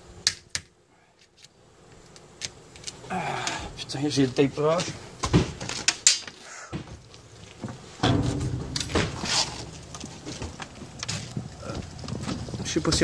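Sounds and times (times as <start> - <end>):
refrigerator door knocks and thuds: 5.2 - 5.6, 8.0 - 13.0
rough scraping rustle: 7.0 - 13.0.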